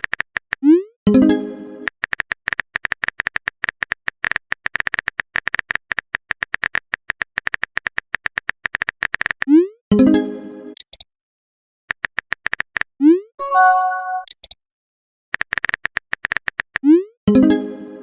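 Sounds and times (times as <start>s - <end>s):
phone keyboard typing clicks: 1.9s - 9.5s, 11.9s - 12.9s, 15.4s - 16.8s
chiming message sound: 13.4s - 14.3s
short high beeps: 13.4s - 14.3s.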